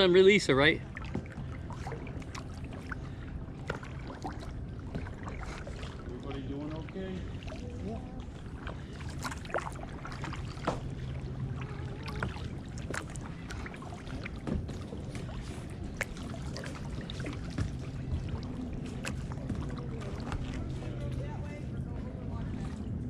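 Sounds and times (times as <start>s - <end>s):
kayak paddles dipping in water: 0.0s - 23.0s
light splashes and knocks: 0.9s - 3.0s, 3.6s - 6.1s, 8.6s - 21.2s.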